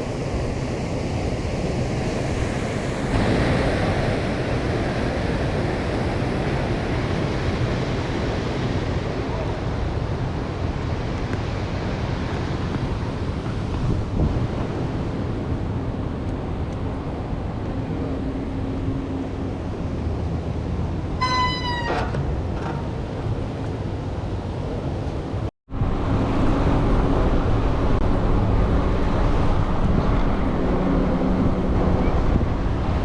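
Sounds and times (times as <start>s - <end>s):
road and traffic rumble: 0.0s - 33.0s
wind buffeting microphone: 0.0s - 33.0s
short high-pitched squeal: 21.2s - 22.2s.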